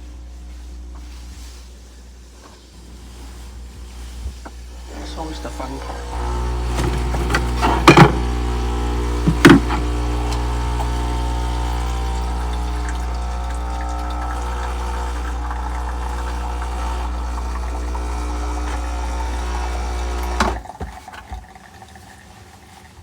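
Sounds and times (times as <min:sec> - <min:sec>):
espresso machine pump humming: 0:03.7 - 0:21.5
espresso machine click: 0:04.9 - 0:20.6.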